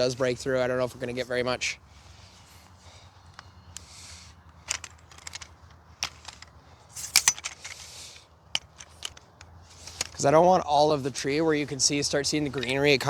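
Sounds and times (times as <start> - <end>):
handling rustles: 1.8 - 10.4
sharp handling clicks: 2.1 - 10.4.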